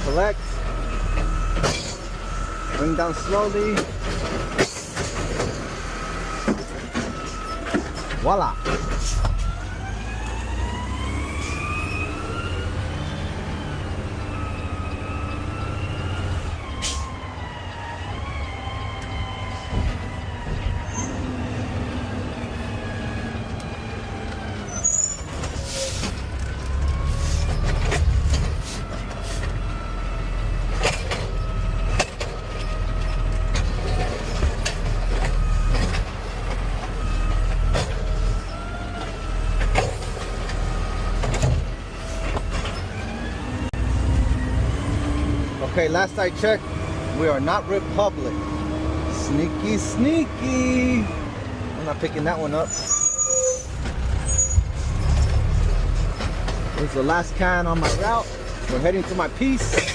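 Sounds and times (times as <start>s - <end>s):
truck drivetrain whine: 0.0s - 59.9s
truck engine rumble: 0.0s - 59.9s
clanks and knocks: 6.4s - 9.4s.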